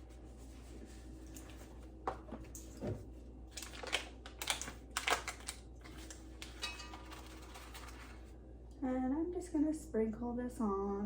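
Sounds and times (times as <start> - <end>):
kitchen items clicking and scraping: 3.6 - 8.3.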